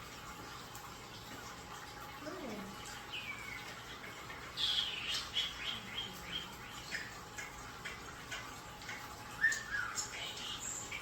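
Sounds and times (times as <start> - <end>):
pet birds chirping: 2.3 - 11.0.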